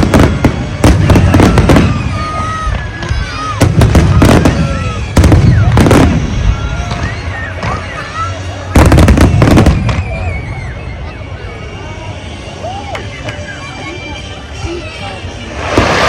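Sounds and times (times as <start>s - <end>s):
fireworks bangs with low rumble: 0.0s - 10.6s, 15.4s - 16.0s.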